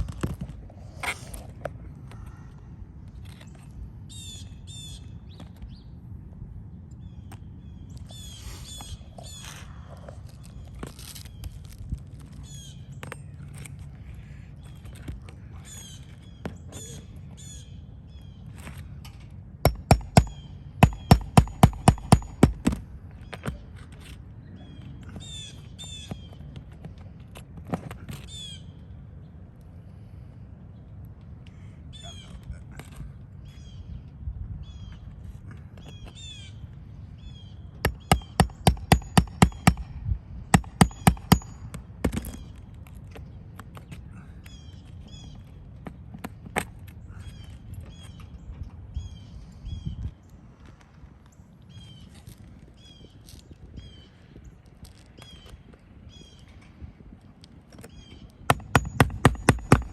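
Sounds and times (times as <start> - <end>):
birds calling: 0.0 - 6.0, 6.7 - 27.2, 28.1 - 50.4, 57.7 - 59.9
hammer striking a nail: 19.7 - 22.8, 37.9 - 42.4, 58.5 - 59.9.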